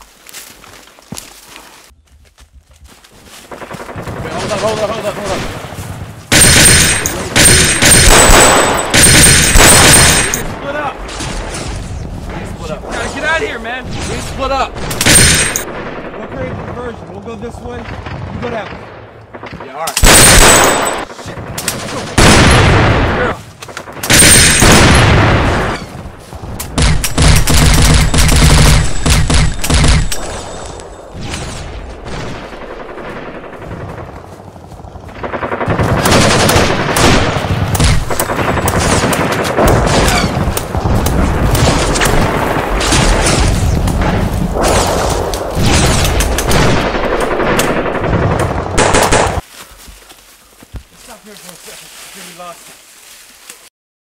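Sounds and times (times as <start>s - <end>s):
rapid automatic gunfire: 6.3s - 10.4s, 26.8s - 30.1s, 35.1s - 43.2s, 45.8s - 49.4s.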